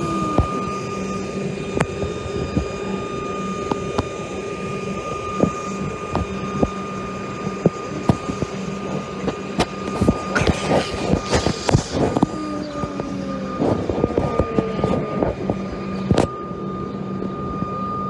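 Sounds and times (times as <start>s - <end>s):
high steady whine: 0.0s - 18.0s
train electrical hum: 0.0s - 18.0s.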